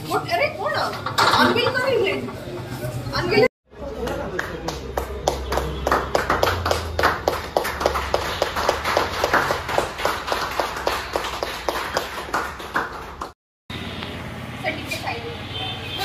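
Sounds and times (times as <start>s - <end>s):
people clapping: 3.8s - 13.4s.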